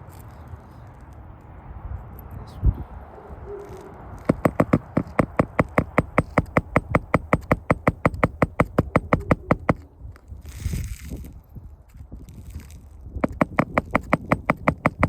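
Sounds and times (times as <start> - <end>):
hammer striking rapidly: 4.3 - 9.8, 13.2 - 15.0.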